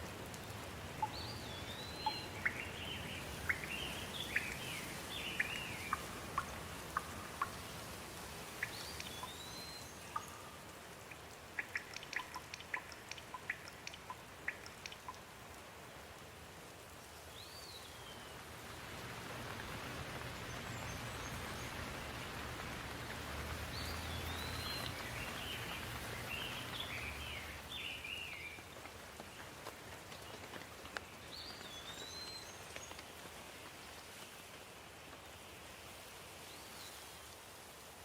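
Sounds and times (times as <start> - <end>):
rain falling: 0.0 - 38.0
bird chirping and warbling: 1.0 - 7.5.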